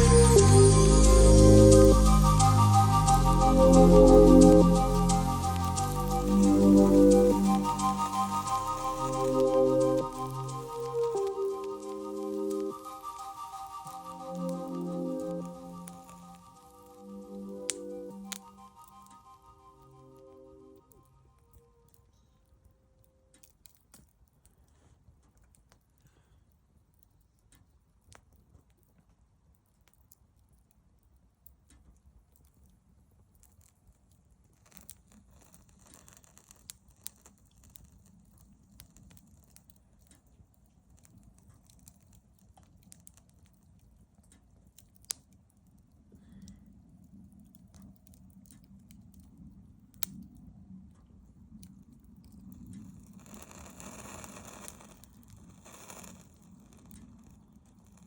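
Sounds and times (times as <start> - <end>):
faint low rumble: 0.0 - 13.0
campfire crackling and popping: 0.0 - 21.0, 23.4 - 58.0.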